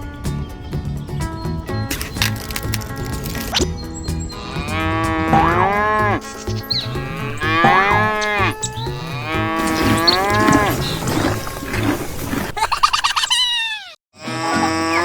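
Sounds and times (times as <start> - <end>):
music with low steady beat: 3.0 - 10.6
cow mooing: 4.4 - 11.8, 14.2 - 15.0.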